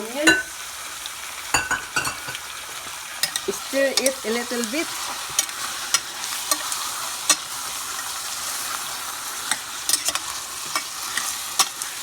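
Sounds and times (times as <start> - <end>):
chicken sizzling in oil: 0.0 - 12.0
utensil knocking against pan: 1.6 - 2.4.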